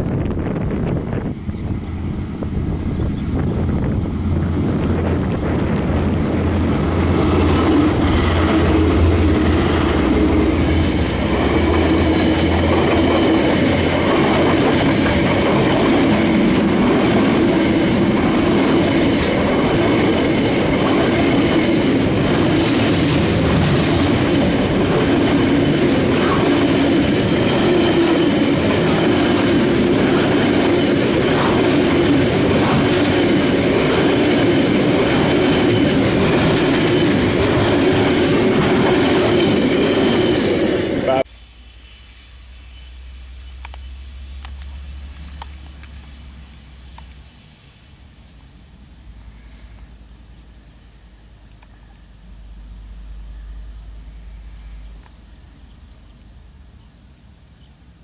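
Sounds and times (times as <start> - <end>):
wheel-on-rail rumble: 0.0 - 41.3
locomotive engine drone: 0.0 - 58.0
faint high wheel squeal: 41.0 - 49.8.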